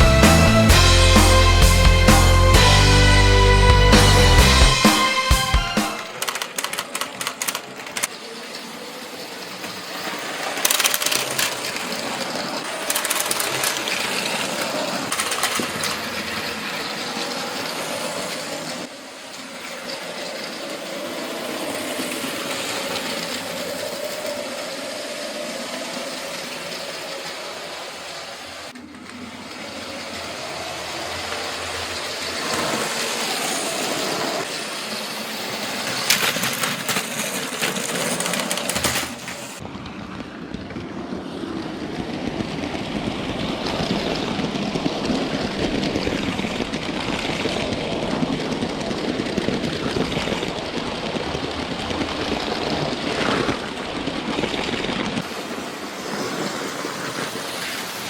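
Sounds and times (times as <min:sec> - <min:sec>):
toy train motor whining: 0:00.0 - 0:39.6
train rattling and clicking on track: 0:03.9 - 0:58.0.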